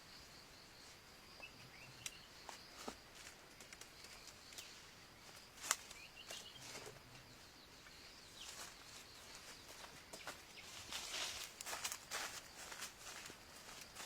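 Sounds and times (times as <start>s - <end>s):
faint bird chirps: 0.0s - 3.0s, 3.8s - 11.5s
small clicks and rustles: 2.8s - 7.2s.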